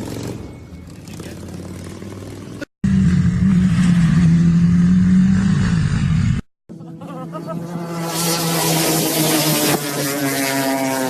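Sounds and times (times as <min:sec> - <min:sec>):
engine at high revs: 0:00.0 - 0:11.0
motorcycle engine running: 0:00.0 - 0:11.0.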